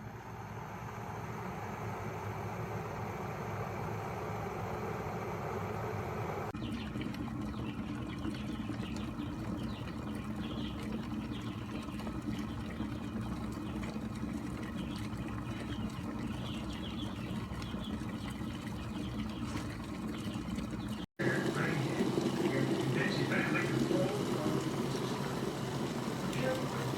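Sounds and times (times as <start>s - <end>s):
electric kettle rumbling: 0.0s - 26.9s
water crackling: 6.5s - 26.9s.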